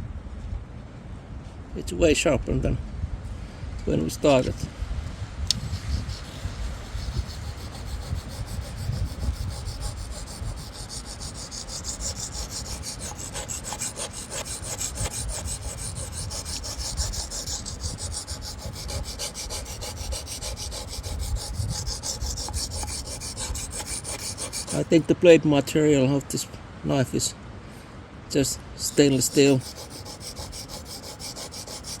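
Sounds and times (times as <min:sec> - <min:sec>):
knife scraping on sharpening stone: 0:05.5 - 0:24.9, 0:28.9 - 0:32.0.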